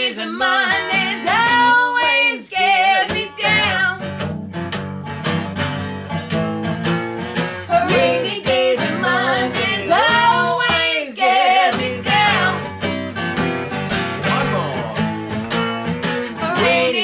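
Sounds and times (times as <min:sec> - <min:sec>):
acoustic guitar strumming: 0:00.5 - 0:17.0.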